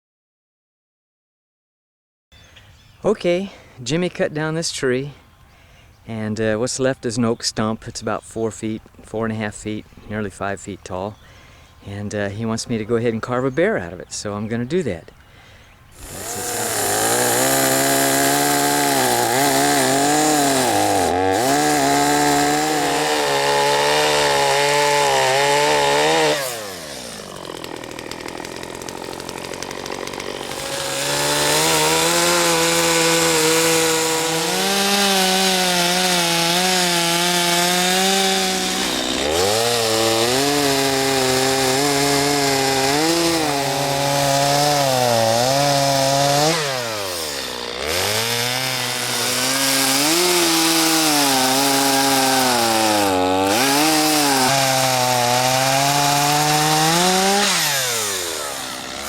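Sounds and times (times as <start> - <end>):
chainsaw cutting wood: 15.9 - 59.0.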